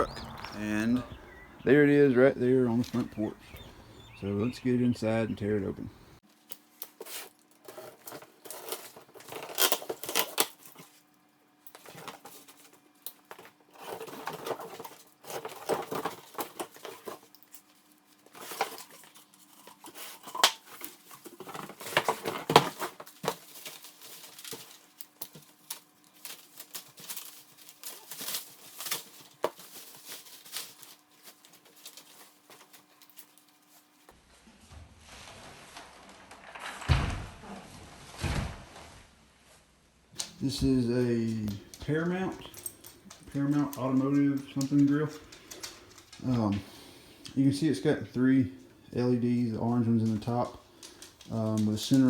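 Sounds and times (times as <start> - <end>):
packaging scraping and crinkling: 6.3 - 34.0.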